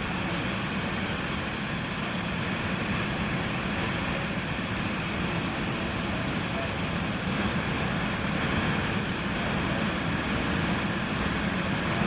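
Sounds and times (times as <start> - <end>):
high engine whine: 0.0 - 12.0
jet engines rumbling: 0.0 - 12.0.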